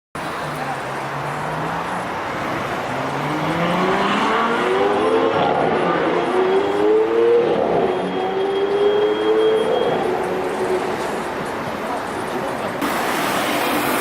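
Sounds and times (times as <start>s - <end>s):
car engine accelerating hard: 0.4s - 9.3s.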